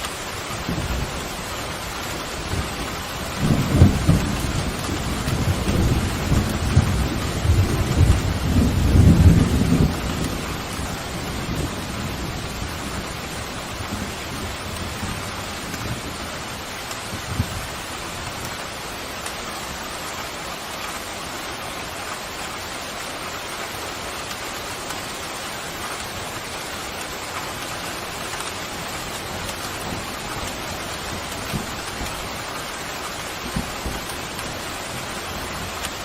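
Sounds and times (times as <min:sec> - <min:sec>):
heavy rain pattering: 0:00.0 - 0:36.0.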